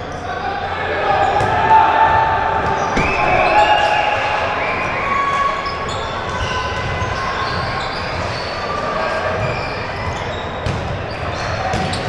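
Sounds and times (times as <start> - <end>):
murmur of crowd voices: 0.0 - 12.0
knocks: 3.0 - 4.2
basketball bouncing on court: 3.0 - 4.6.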